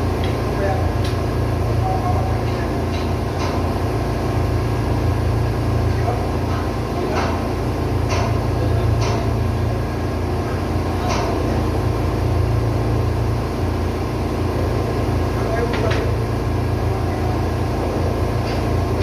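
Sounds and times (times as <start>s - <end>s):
ship diesel engine humming: 0.0s - 19.0s.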